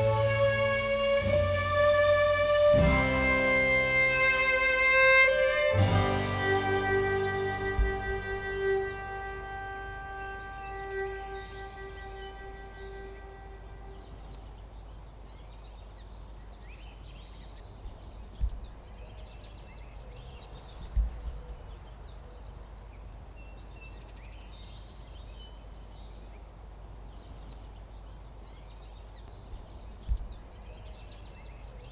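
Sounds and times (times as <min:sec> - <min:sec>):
low thumps: 0:00.0 - 0:14.0, 0:17.9 - 0:18.8, 0:29.5 - 0:30.5
steady low rumble: 0:00.0 - 0:14.8
small birds chirping: 0:00.0 - 0:31.9.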